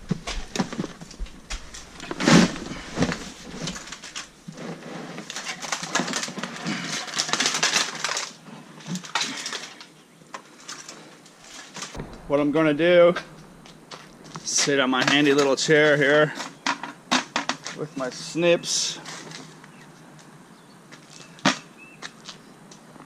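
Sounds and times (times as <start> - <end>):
plastic gear and cables rustling: 0.3 - 11.7.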